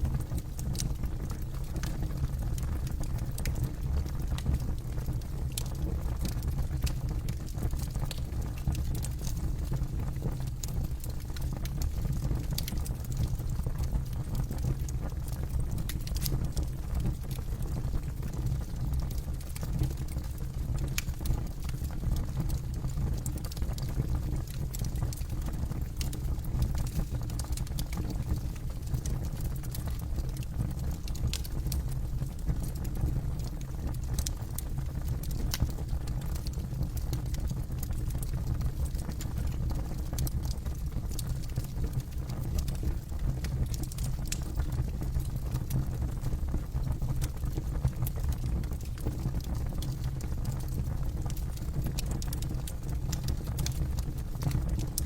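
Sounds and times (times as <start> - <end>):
campfire flames rumbling: 0.0 - 55.0
burning wood crackling: 31.0 - 45.6.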